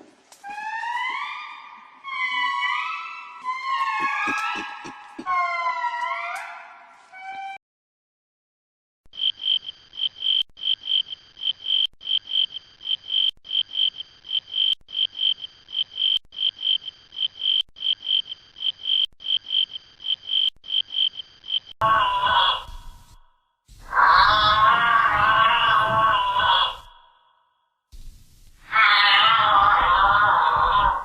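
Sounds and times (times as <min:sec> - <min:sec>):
lower pitched animal call: 0:00.4 - 0:07.6, 0:21.8 - 0:27.4, 0:28.6 - 0:31.0.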